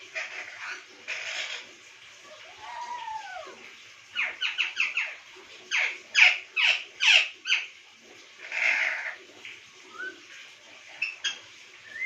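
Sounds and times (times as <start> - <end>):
parrot squawking: 0.2 - 1.6, 8.4 - 9.2.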